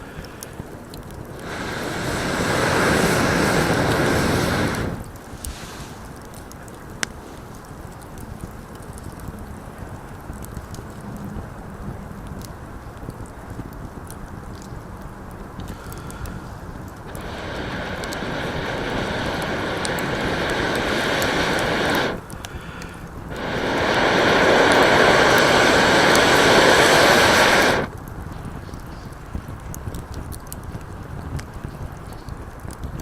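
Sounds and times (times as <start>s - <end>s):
campfire crackling: 0.0s - 33.0s
moka pot hissing and sputtering: 1.3s - 5.1s, 17.0s - 22.3s, 23.2s - 27.9s.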